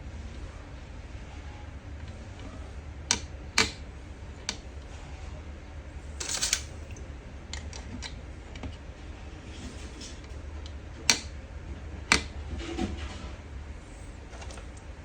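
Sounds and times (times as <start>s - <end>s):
steady low hum: 0.0s - 15.0s
sharp clicks and knocks: 12.1s - 12.3s.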